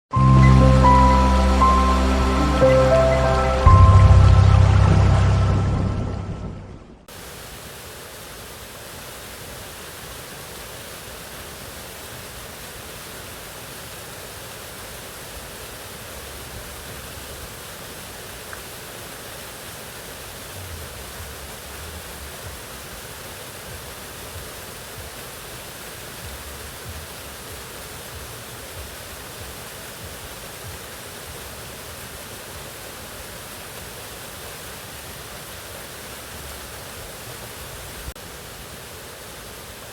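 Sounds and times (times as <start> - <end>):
music: 0.1 - 7.0
waterfall rushing: 0.1 - 39.9.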